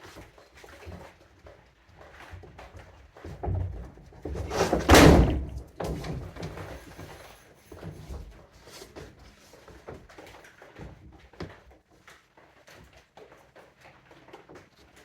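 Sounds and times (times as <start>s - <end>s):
loud thud with scrape: 4.3s - 6.2s.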